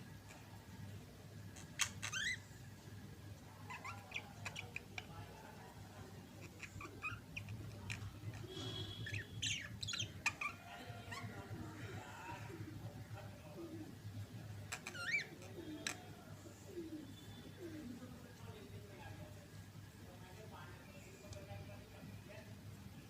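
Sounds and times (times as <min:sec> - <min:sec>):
budgerigars chattering: 0:03.7 - 0:05.0, 0:06.4 - 0:11.4.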